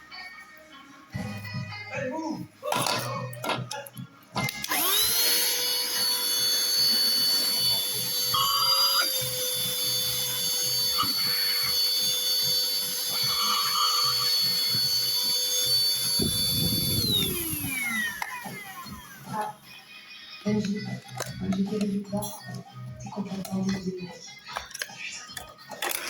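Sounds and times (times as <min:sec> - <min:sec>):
handheld vacuum cleaner whine: 0:04.4 - 0:19.8.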